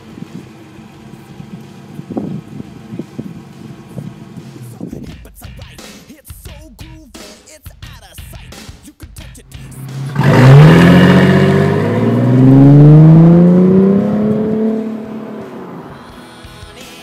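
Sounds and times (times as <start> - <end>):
car exhaust revving: 0.0 - 5.0, 9.4 - 16.0
background music: 4.4 - 17.0.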